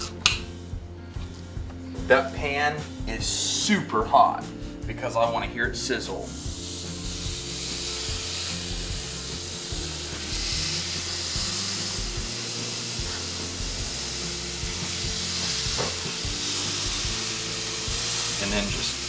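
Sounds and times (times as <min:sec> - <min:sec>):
pineapple sizzling in grill pan: 0:06.4 - 0:19.0.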